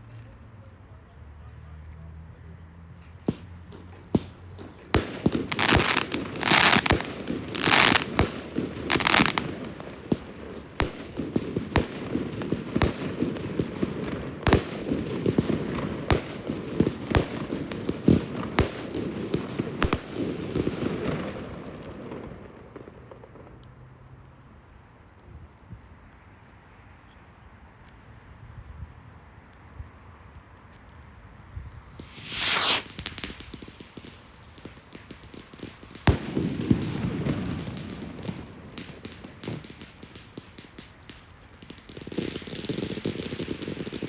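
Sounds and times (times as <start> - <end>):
fireworks bangs and crackling: 3.2 - 23.7, 31.7 - 44.0.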